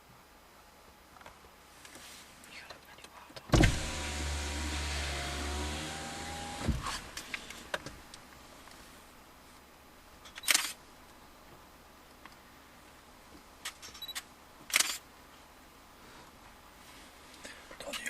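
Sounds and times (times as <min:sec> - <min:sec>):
electric window motor whirring: 0:03.5 - 0:07.7
window motor clunk: 0:03.5 - 0:08.0.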